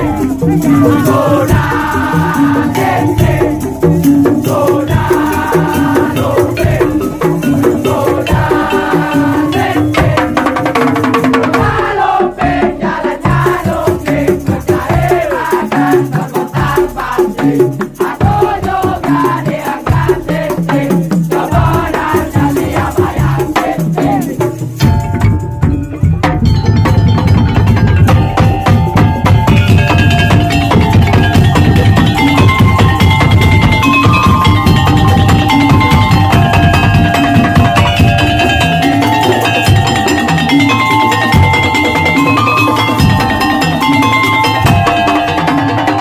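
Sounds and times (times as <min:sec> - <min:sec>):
rapid percussion strokes: 0:00.0 - 0:46.0
pitch-bending melody line: 0:24.8 - 0:46.0.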